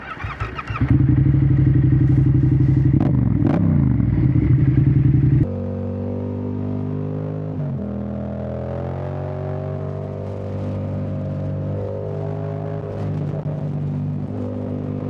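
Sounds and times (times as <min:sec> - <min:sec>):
motorcycle engine running: 0:00.0 - 0:05.6.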